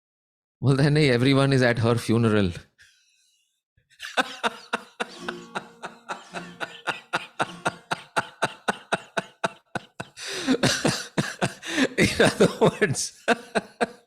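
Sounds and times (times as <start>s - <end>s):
person laughing: 4.0s - 14.0s.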